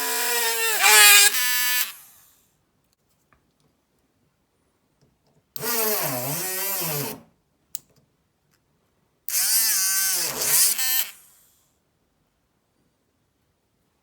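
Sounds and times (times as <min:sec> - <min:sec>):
mini drill motor whirring: 0:00.0 - 0:02.1, 0:05.6 - 0:07.2, 0:09.3 - 0:11.3.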